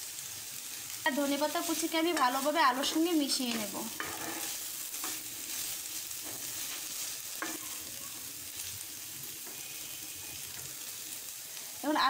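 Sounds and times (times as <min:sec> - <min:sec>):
potatoes sizzling in a pan: 0:00.0 - 0:12.0
plastic spatula scraping a pan: 0:03.9 - 0:05.2.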